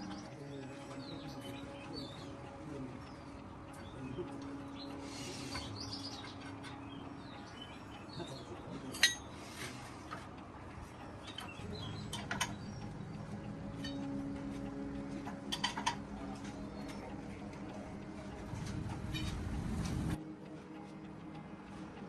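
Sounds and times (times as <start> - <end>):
small birds chirping: 0.0 - 9.9, 10.8 - 18.5
faint steady hum: 0.0 - 22.0.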